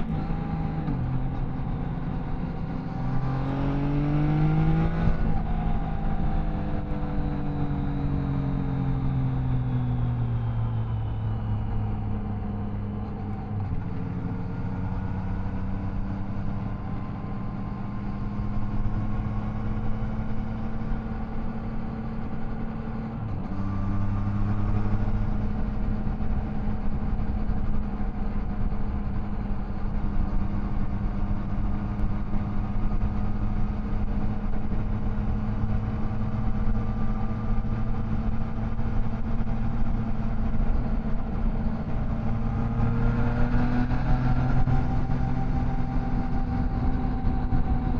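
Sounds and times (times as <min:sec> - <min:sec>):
motorcycle engine running: 0:23.8 - 0:47.9.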